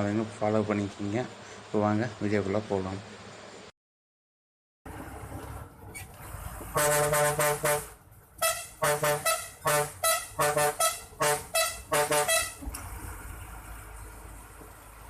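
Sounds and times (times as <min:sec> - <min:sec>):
blaring brass-like horn tune: 0:06.7 - 0:12.6.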